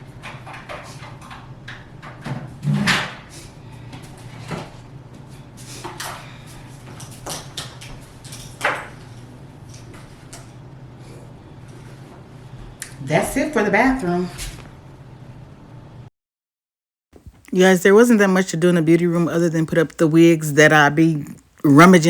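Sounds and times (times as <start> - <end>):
steady low hum: 1.2 - 16.1.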